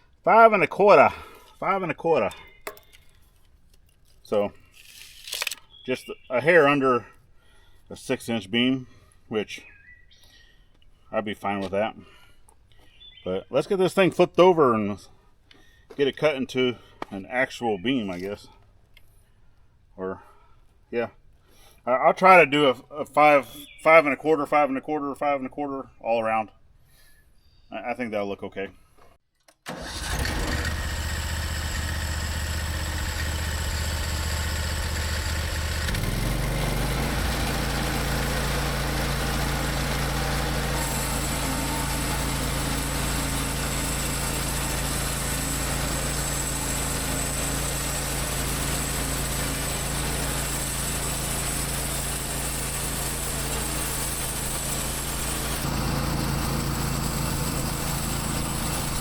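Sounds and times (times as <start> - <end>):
sawmill engine running: 29.7 - 59.0.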